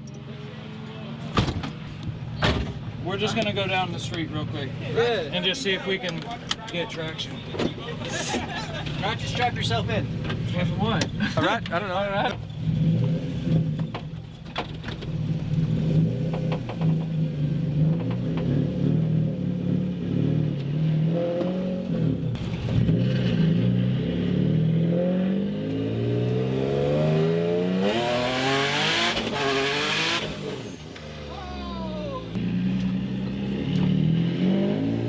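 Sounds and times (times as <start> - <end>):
intake and exhaust rush: 0.0 - 35.0
car engine accelerating through gears: 12.5 - 14.0, 14.8 - 31.2, 32.4 - 35.0.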